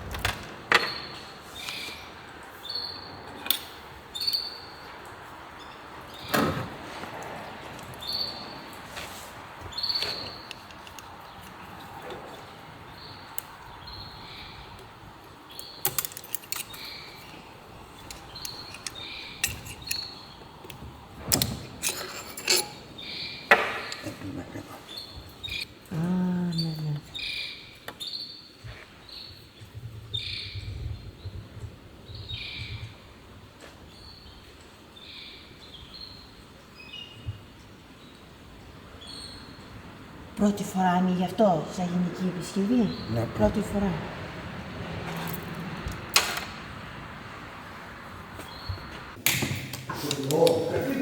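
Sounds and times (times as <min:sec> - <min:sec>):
tools and metal parts clinking: 0:09.8 - 0:12.4, 0:15.5 - 0:24.2, 0:45.0 - 0:46.6.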